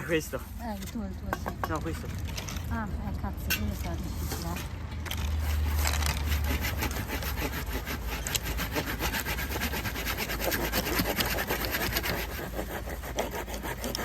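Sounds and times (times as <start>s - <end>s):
hand saw cutting wood: 4.4s - 14.0s.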